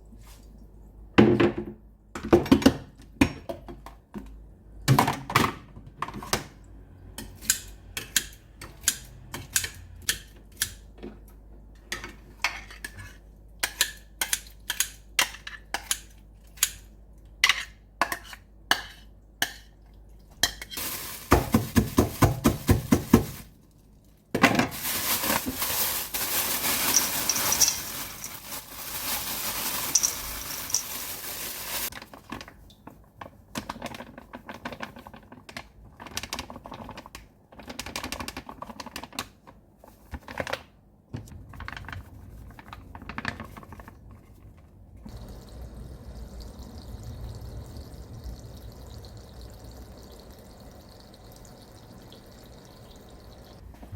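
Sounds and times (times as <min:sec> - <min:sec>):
utensils clinking against dishes: 0:26.8 - 0:28.5.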